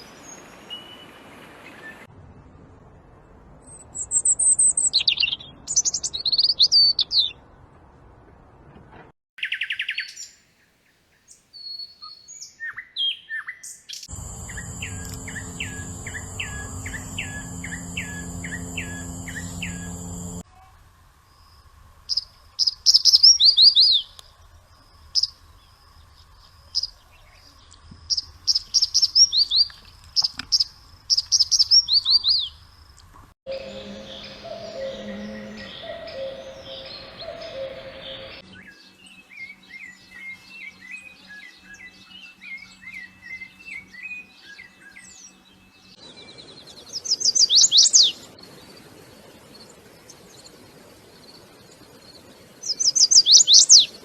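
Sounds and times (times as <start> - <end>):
songbirds singing: 11.3 - 20.4, 33.5 - 48.6
low hum: 14.1 - 20.4, 33.5 - 38.4
steady high tone: 14.1 - 20.4, 33.5 - 38.4.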